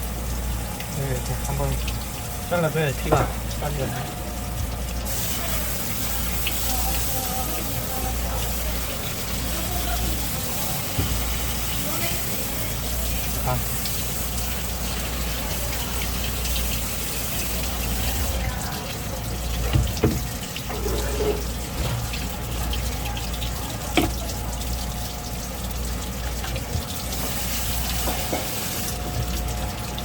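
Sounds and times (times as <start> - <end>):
tap water splashing into sink: 3.0 - 3.8, 10.8 - 12.1, 12.8 - 30.0.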